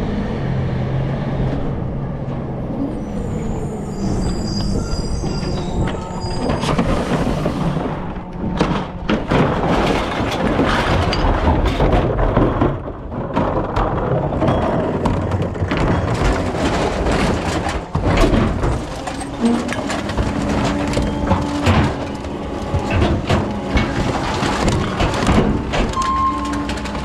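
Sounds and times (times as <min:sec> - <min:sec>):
truck hopper clattering thumps: 0:06.4 - 0:27.0.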